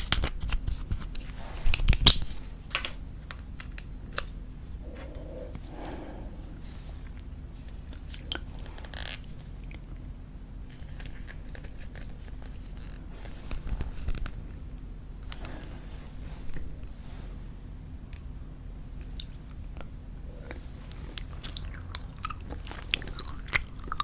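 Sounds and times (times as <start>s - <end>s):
gum chewing with wet smacks: 19.0s - 24.0s.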